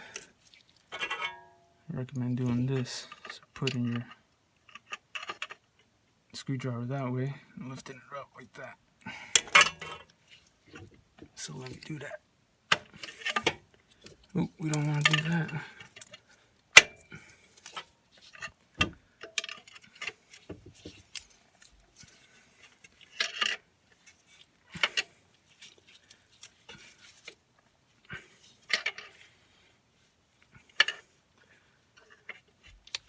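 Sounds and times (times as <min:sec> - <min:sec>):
hand tools clinking on metal: 0:09.3 - 0:10.1, 0:14.3 - 0:16.2.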